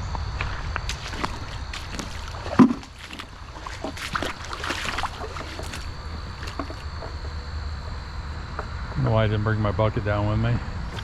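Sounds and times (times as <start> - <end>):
water sloshing in creek: 0.4 - 8.4.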